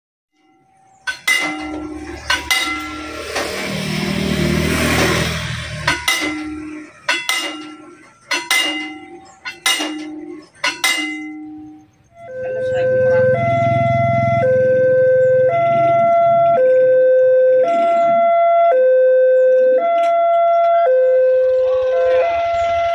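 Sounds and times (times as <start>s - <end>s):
level-crossing warning bell: 0.4s - 22.9s
motor vehicle passing: 0.7s - 17.0s.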